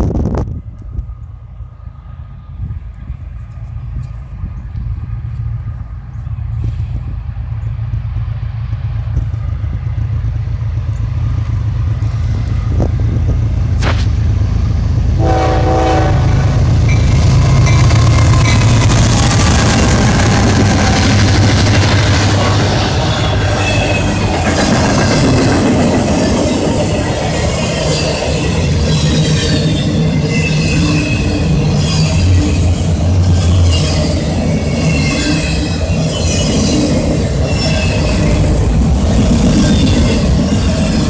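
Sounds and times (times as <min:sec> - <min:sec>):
diesel locomotives rumbling: 0:00.0 - 0:41.0
train horn blast: 0:15.2 - 0:17.6, 0:21.8 - 0:24.3
high wheel squeals: 0:16.8 - 0:25.4, 0:26.1 - 0:41.0.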